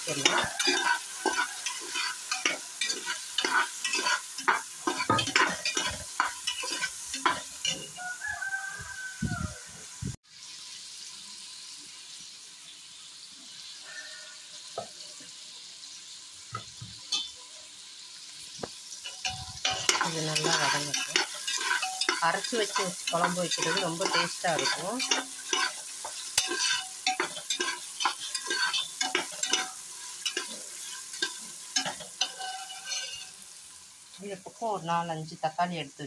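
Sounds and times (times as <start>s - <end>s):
shallots sizzling in oil: 0.0s - 36.0s
metal ladle scraping a pot: 0.1s - 8.0s, 19.0s - 33.4s.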